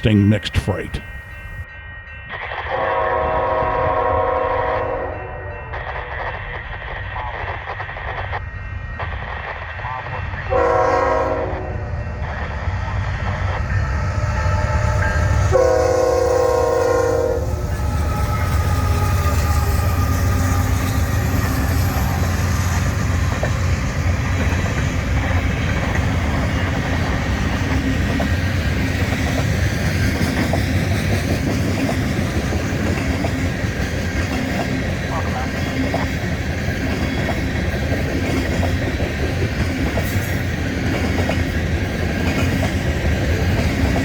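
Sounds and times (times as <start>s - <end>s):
locomotive horn blast: 10.5s - 11.7s, 15.5s - 17.5s.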